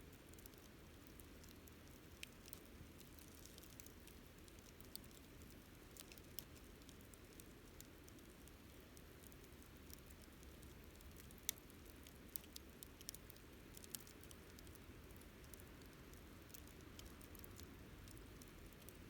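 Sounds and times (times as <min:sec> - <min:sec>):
campfire crackling: 0:00.1 - 0:19.0.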